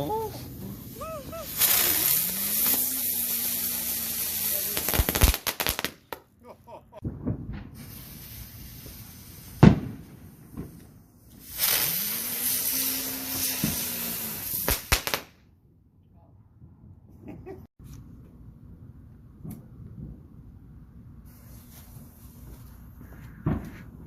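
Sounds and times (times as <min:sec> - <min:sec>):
fireworks hissing: 0:00.0 - 0:06.2, 0:07.7 - 0:15.3, 0:21.3 - 0:22.8
firework bang: 0:07.0 - 0:12.0, 0:13.3 - 0:15.3, 0:23.4 - 0:23.8
firework pops: 0:09.6 - 0:11.9, 0:23.1 - 0:23.9.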